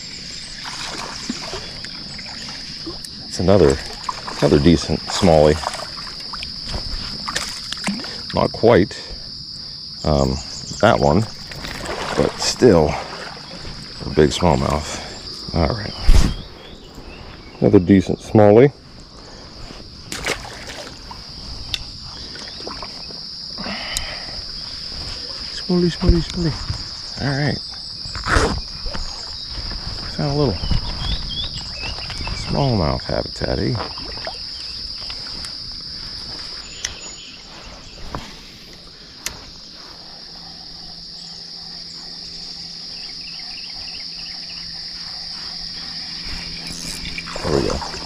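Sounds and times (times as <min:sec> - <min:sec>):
water sloshing and splashing: 0:00.0 - 0:08.4, 0:11.1 - 0:15.3, 0:19.7 - 0:23.2, 0:33.7 - 0:41.0, 0:43.8 - 0:48.0
high-pitched insect chorus: 0:00.0 - 0:48.0
high-pitched insect buzzing: 0:33.8 - 0:48.0.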